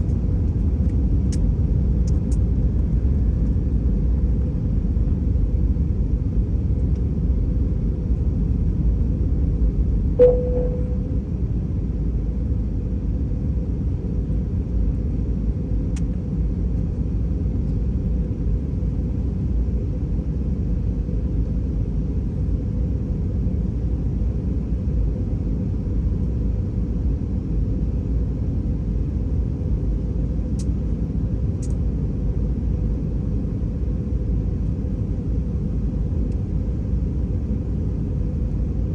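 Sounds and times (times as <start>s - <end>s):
aircraft cabin rumble: 0.0s - 38.9s
held tone: 10.2s - 11.2s
click: 31.6s - 31.8s.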